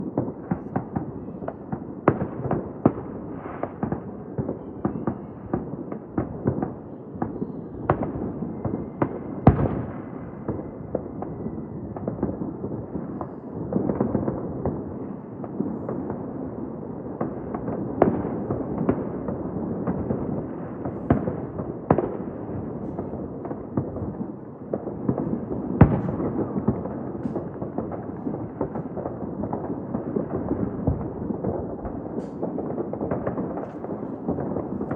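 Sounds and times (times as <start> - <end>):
distant fireworks rumble and crackle: 0.0 - 34.9
firework bangs: 17.2 - 34.9.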